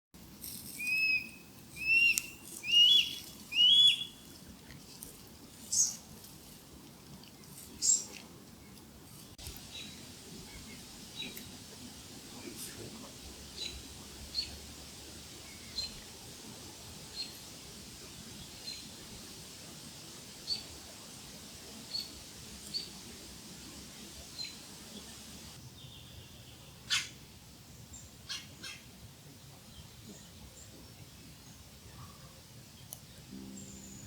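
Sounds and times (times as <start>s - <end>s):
bird chirping: 0.8s - 4.2s, 33.3s - 34.0s.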